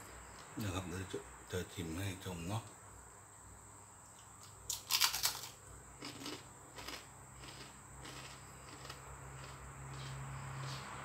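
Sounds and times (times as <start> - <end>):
crunchy food being chewed: 4.4 - 10.8.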